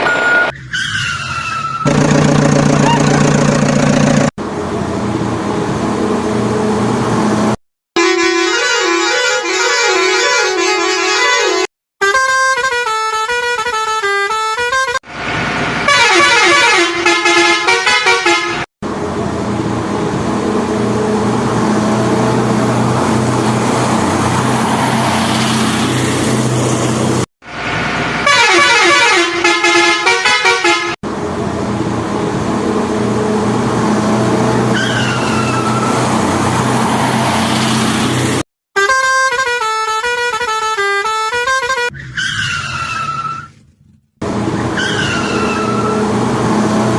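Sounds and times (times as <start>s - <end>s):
heavy vehicle engine running: 1.7s - 7.6s, 18.8s - 28.3s, 31.0s - 38.4s, 41.8s - 46.9s
vehicle horn playing a tune: 8.0s - 15.0s, 15.9s - 18.6s, 28.2s - 31.0s, 38.8s - 42.0s.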